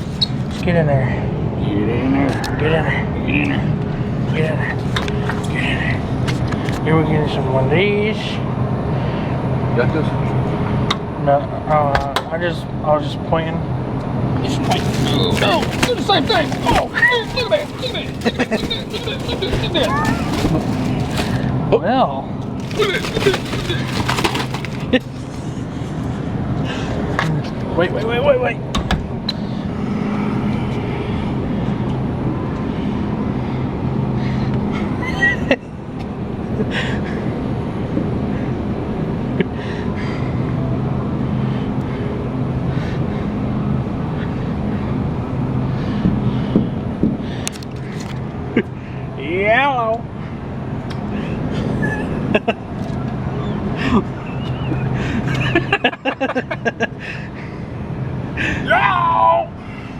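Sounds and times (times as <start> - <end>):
vehicle engine hum: 13.4 - 35.0
road noise: 13.6 - 21.7, 22.3 - 34.7.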